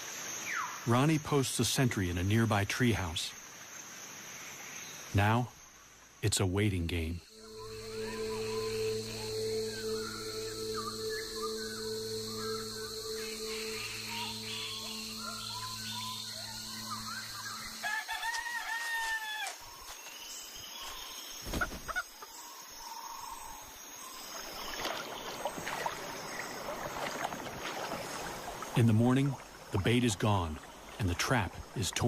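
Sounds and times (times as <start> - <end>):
insect hum: 0.0 - 32.0
low sustained tones: 7.2 - 18.0
bird chirps: 7.2 - 18.1
rooster crowing: 17.7 - 19.6.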